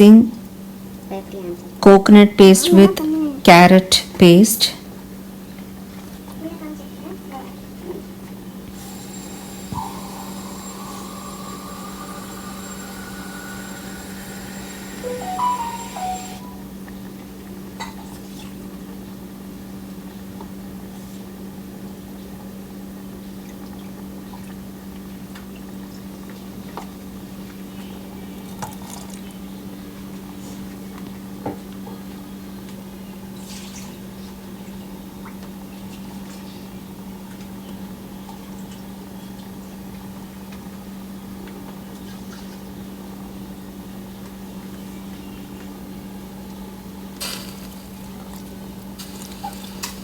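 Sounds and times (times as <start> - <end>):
soft liquid cooking sounds: 5.4 - 16.6, 32.1 - 50.0
kitchen appliance humming: 8.7 - 16.6, 47.2 - 50.0.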